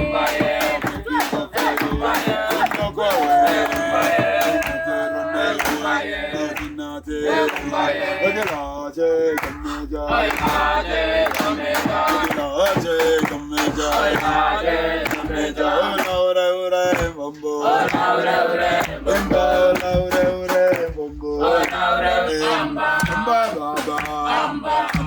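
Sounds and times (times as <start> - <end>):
pestle thudding in mortar: 0.0 - 4.9, 10.3 - 15.4
men singing call-and-response: 0.0 - 25.0.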